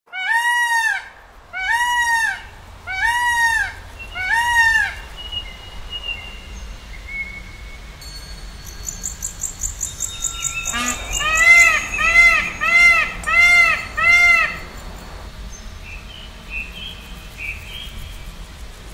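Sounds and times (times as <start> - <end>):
loud arched bird calls: 0.1 - 8.0, 8.7 - 18.2
fast high bird twitter: 8.6 - 18.3.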